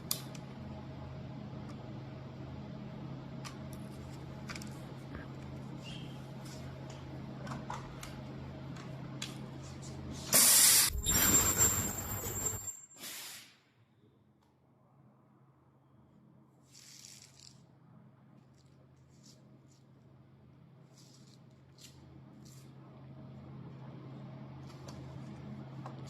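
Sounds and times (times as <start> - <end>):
machine hum: 0.0 - 12.7
loud hiss with high whistle: 10.4 - 13.5.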